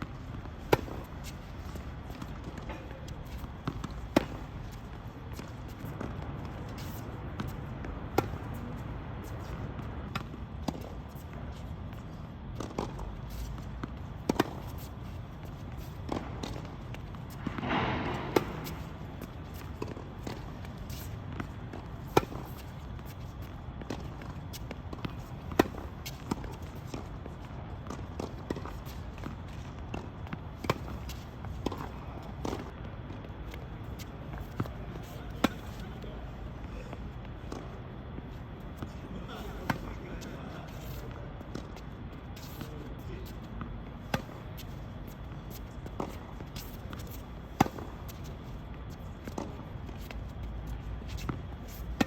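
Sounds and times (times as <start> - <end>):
tennis ball bouncing on court: 0.6 - 8.6, 12.6 - 15.0, 15.7 - 35.8, 43.2 - 52.0
tennis ball struck by rackets: 17.3 - 20.5, 46.0 - 48.1.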